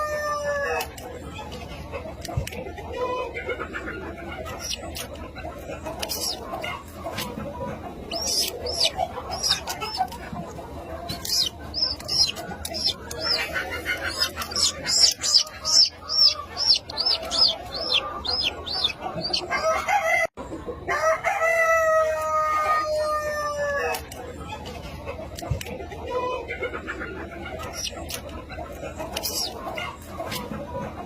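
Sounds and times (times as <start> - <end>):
chick peeping: 0.0 - 31.0
rooster crowing: 19.3 - 20.3, 20.9 - 23.9.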